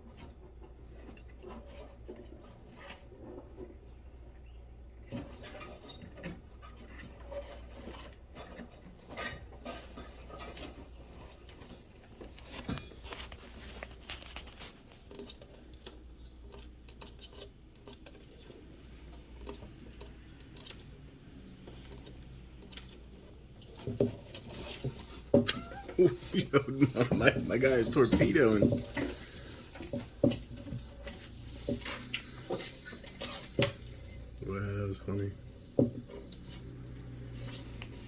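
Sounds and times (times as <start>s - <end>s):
mice scratching and tapping: 23.6s - 37.9s.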